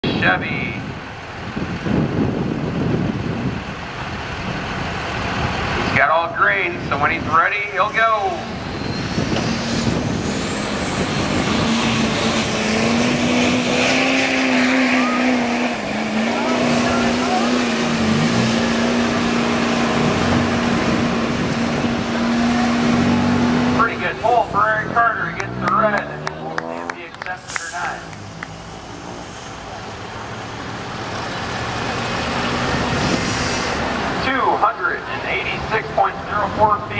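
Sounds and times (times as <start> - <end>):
diesel pickup engine under load: 0.0 - 36.9
turbocharger whistle: 8.5 - 18.3.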